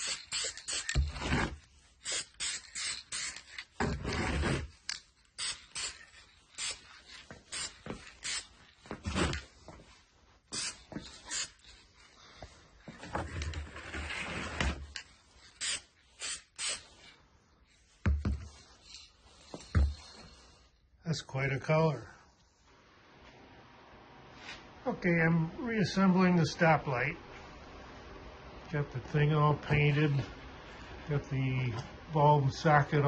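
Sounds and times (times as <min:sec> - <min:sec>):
spray paint can hissing: 0:00.0 - 0:01.2, 0:02.0 - 0:03.7, 0:05.3 - 0:08.6, 0:10.5 - 0:11.7, 0:15.4 - 0:17.1.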